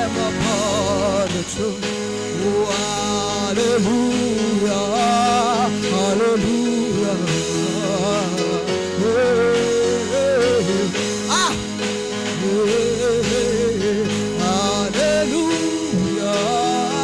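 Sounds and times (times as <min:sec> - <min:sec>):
person singing wavering melody: 0:00.0 - 0:11.8
sustained backing chords: 0:00.0 - 0:17.0.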